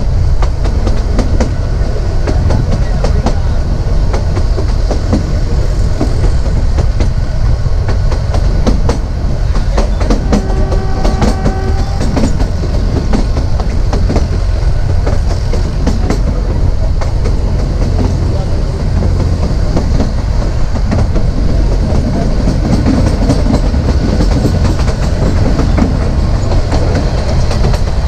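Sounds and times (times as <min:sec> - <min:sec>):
train rumbling along track: 0:00.0 - 0:28.0
wheels clicking over rail joints: 0:06.0 - 0:28.0.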